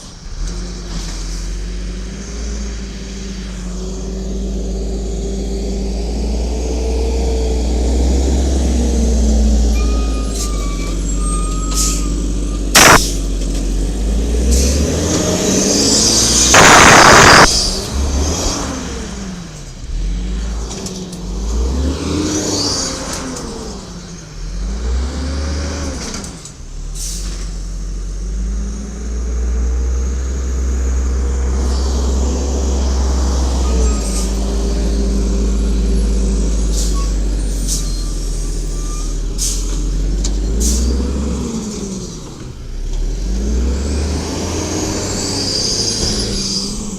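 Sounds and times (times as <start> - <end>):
sharp click: 12.8 - 13.2, 16.6 - 17.6
air brake hiss: 27.0 - 27.4.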